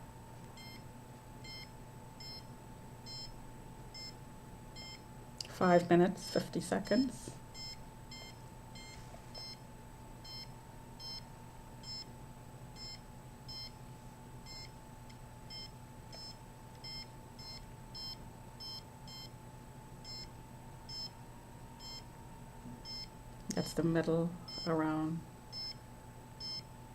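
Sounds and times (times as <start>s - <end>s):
faint steady hum: 0.0s - 26.9s
radiation meter beeping: 0.6s - 4.2s, 4.8s - 5.1s, 6.8s - 9.6s, 10.2s - 12.1s, 12.8s - 13.8s, 14.4s - 19.4s, 20.0s - 21.2s, 21.8s - 22.0s, 22.8s - 23.1s, 24.4s - 25.8s, 26.4s - 26.7s.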